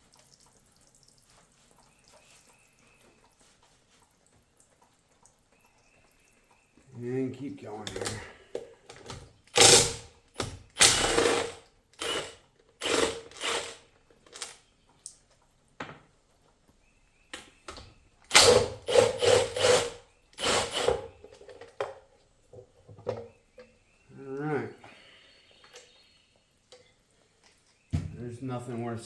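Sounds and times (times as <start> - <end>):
cordless power tool spinning bolts: 9.5 - 14.6, 18.3 - 21.8.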